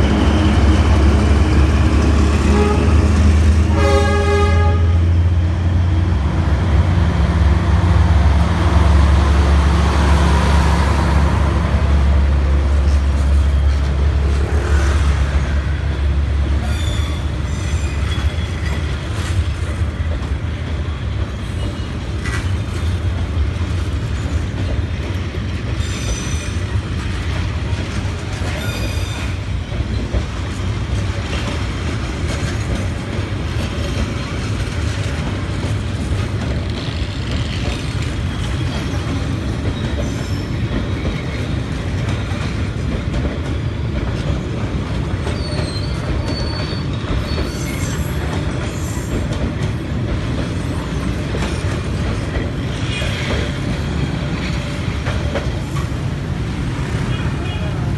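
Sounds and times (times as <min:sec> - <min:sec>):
train wheels rumbling on rails: 0:00.0 - 0:57.9
high-pitched wheel squeal: 0:16.6 - 0:18.8, 0:45.1 - 0:49.4.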